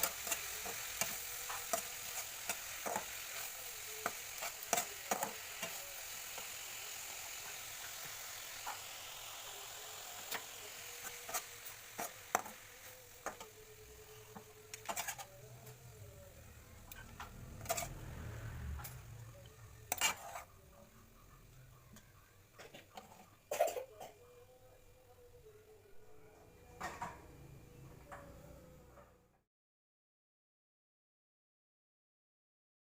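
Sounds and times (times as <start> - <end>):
spatula clinking and scraping pan: 0.0 - 8.9, 14.3 - 15.4, 16.9 - 18.0, 19.8 - 20.5
food sizzling in a wok: 0.0 - 24.0.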